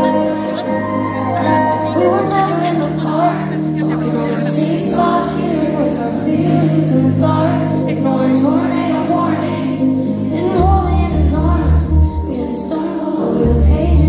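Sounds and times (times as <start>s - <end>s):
live slow song: 0.0s - 14.0s.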